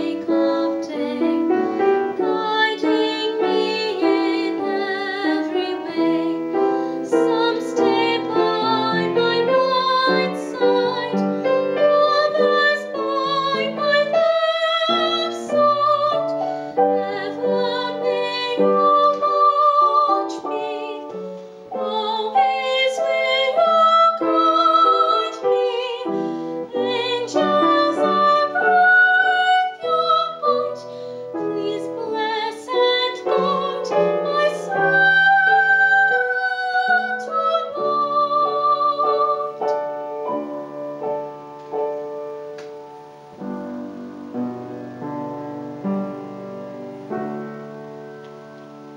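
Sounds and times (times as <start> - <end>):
girl singing with vibrato: 0.0 - 40.8
piano accompaniment: 0.0 - 48.9.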